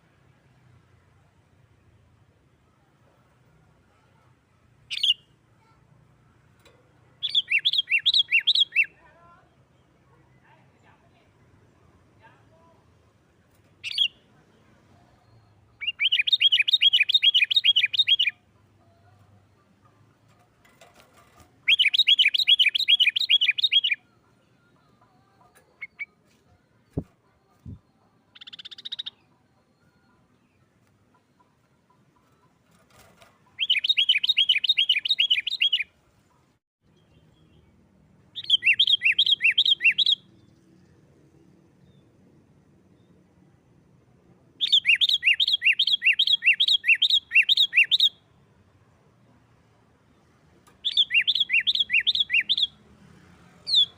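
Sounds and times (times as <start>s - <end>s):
bulbul chattering song: 7.2s - 9.0s, 13.8s - 14.3s, 15.1s - 20.2s, 21.6s - 36.0s, 38.3s - 40.6s, 44.6s - 48.3s, 50.8s - 52.8s.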